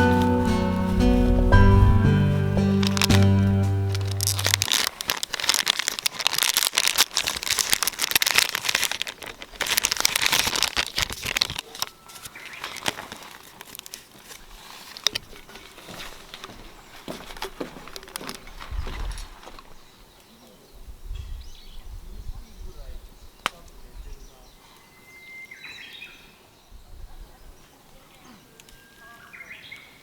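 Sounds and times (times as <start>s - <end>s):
crinkling material being handled: 0.0s - 19.9s.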